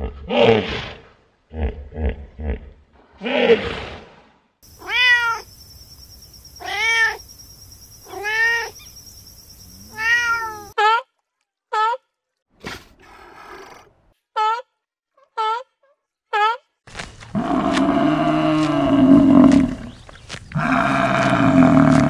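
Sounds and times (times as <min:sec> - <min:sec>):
cat meowing: 0:04.8 - 0:05.5, 0:06.6 - 0:07.2, 0:08.0 - 0:08.8, 0:09.9 - 0:10.8.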